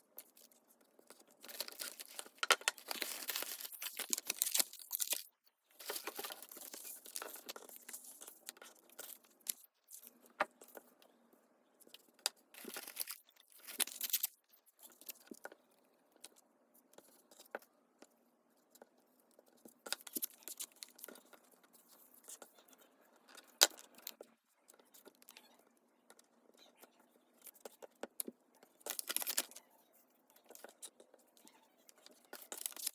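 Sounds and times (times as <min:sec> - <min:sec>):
paper rustling and crinkling: 0:00.2 - 0:10.0, 0:12.6 - 0:15.4, 0:28.8 - 0:29.6, 0:31.9 - 0:32.9.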